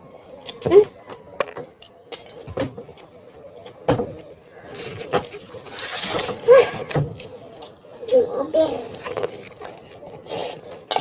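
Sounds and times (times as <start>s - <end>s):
rustling: 4.5s - 7.4s.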